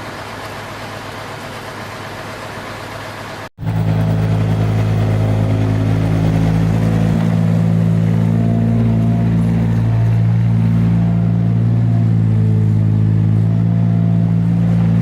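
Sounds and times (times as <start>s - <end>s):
motor humming: 3.6s - 13.5s.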